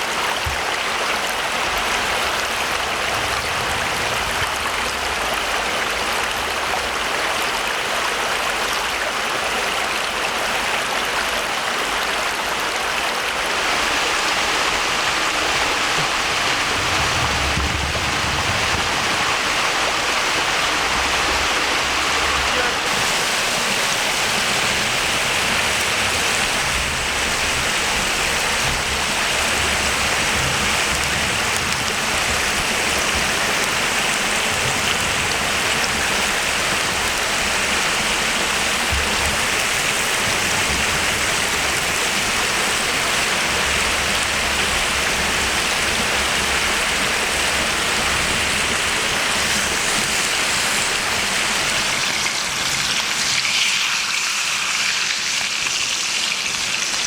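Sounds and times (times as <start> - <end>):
food sizzling in hot fat: 22.2 - 43.0, 46.8 - 57.0.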